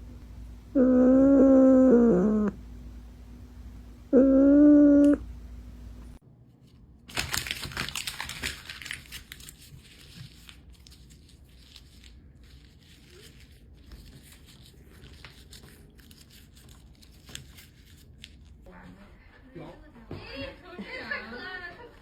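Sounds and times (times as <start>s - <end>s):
paper or plastic crinkling: 6.6s - 18.6s.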